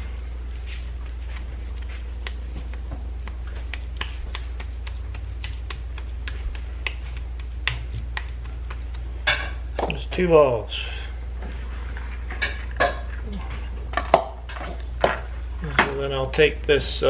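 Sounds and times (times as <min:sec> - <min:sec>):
raw meat pressed by hand: 0:00.0 - 0:10.0.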